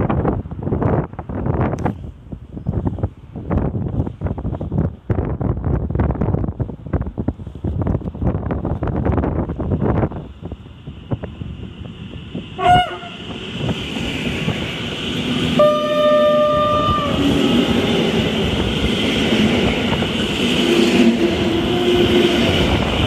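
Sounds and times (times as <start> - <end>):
train rumbling past: 0.0 - 23.0
train horn: 12.6 - 13.4, 15.5 - 17.8, 20.6 - 22.5.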